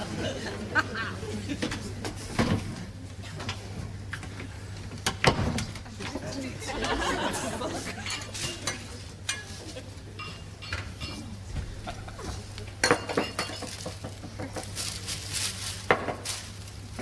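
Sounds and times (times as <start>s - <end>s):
steady low hum: 0.0s - 17.0s
crockery and cutlery clinking: 6.1s - 15.2s.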